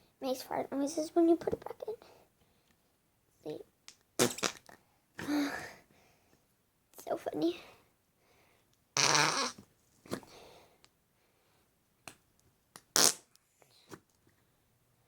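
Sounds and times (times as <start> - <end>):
slime making fart noises: 4.2 - 4.8, 9.0 - 10.2, 12.9 - 13.3.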